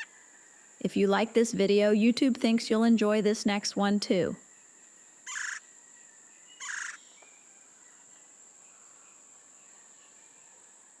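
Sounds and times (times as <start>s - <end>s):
short bird calls: 5.3s - 5.6s, 6.6s - 7.2s
high-pitched insect drone: 5.3s - 5.8s, 6.4s - 7.2s.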